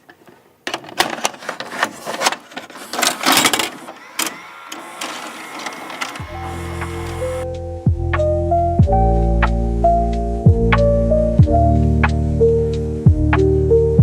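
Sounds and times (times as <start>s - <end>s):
rustling: 1.1s - 4.0s.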